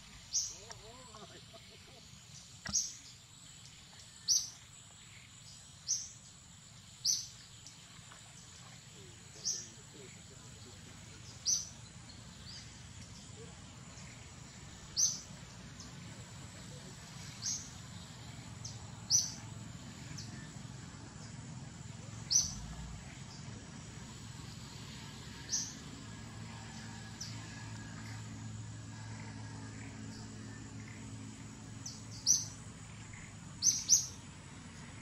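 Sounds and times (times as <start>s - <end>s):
faint high insect drone: 0.0s - 35.0s
bird chirping: 9.0s - 16.0s, 16.6s - 20.6s, 22.1s - 23.6s, 30.1s - 34.2s.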